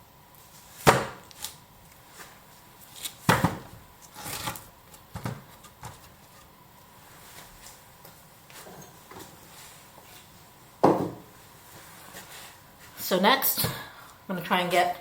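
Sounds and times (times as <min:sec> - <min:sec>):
wooden knocks and thuds: 0:10.8 - 0:11.3.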